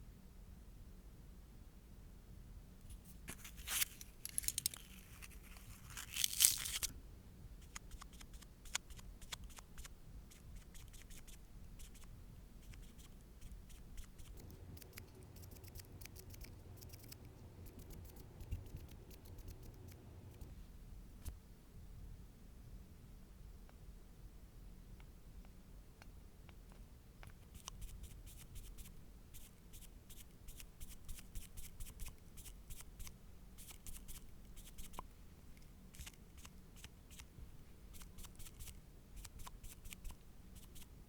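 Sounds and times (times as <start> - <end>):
scratchy tearing rasps: 3.3 - 6.9.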